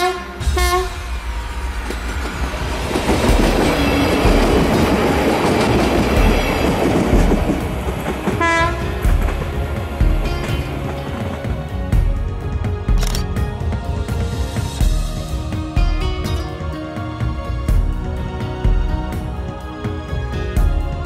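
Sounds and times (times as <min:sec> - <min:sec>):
train horn: 0:00.0 - 0:01.4, 0:08.3 - 0:09.2
train passing on rails: 0:00.0 - 0:21.0
low thumps of train: 0:00.4 - 0:12.3.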